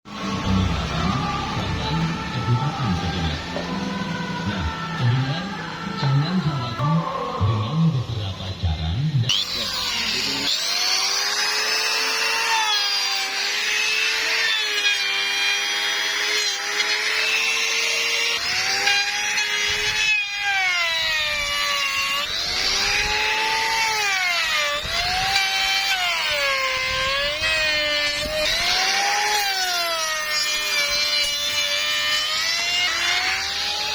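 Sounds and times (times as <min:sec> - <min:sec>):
power tool motor whine: 0:00.1 - 0:07.5, 0:09.3 - 0:33.9.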